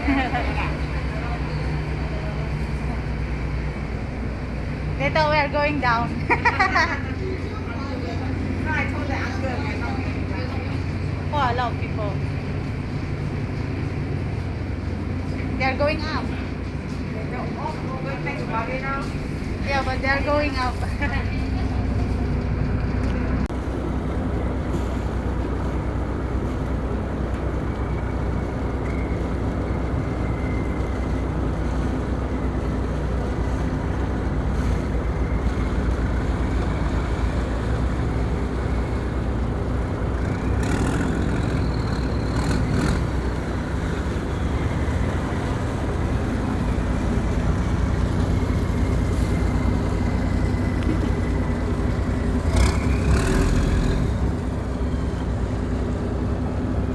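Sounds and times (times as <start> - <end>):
boat engine drone: 0.0 - 56.9.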